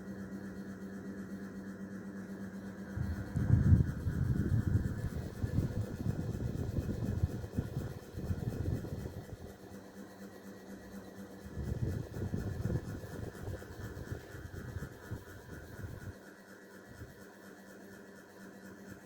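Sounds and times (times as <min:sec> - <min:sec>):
ceiling fan motor hum: 0:00.0 - 0:19.0
uneven low rumble: 0:02.9 - 0:07.7.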